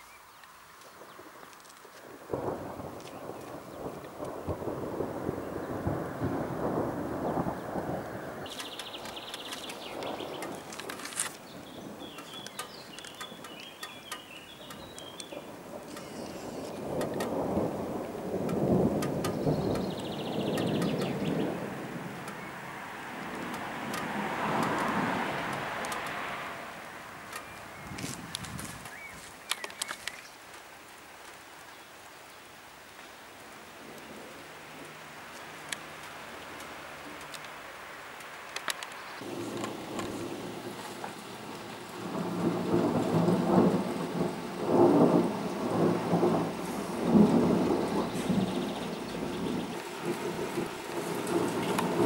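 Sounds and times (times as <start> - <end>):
rain falling: 0.0 - 52.0
songbirds calling: 0.0 - 52.0
thunder rumbling: 1.0 - 30.1, 39.2 - 52.0
sharp ticks: 12.1 - 16.4, 17.0 - 17.4, 18.4 - 21.2, 23.4 - 26.2.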